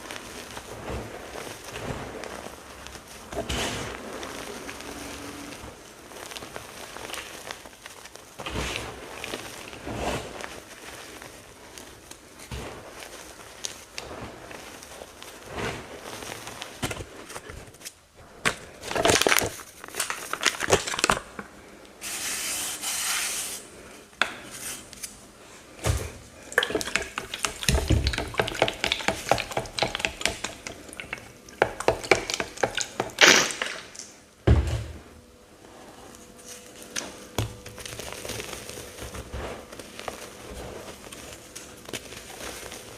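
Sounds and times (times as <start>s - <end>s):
paste chunks crunching by hand: 26.1s - 34.2s.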